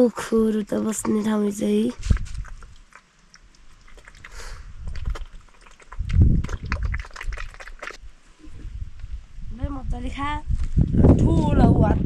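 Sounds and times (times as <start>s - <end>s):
pig chomping feed: 0.1s - 8.0s.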